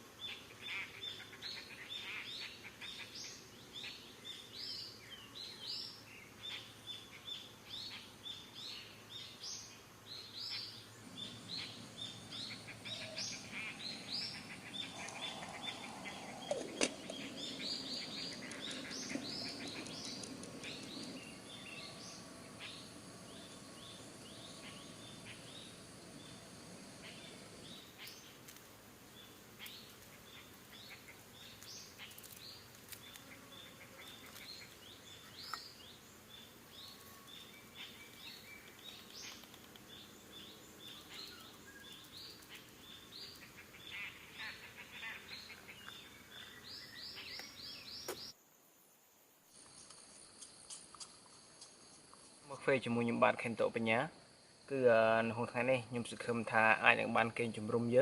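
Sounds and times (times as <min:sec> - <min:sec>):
birds chirping: 0:00.2 - 0:48.4.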